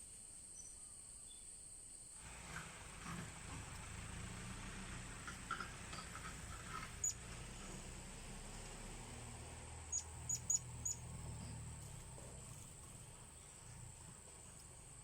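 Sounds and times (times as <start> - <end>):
high insect drone: 6.9 - 15.0
parrot chirps: 9.9 - 11.0.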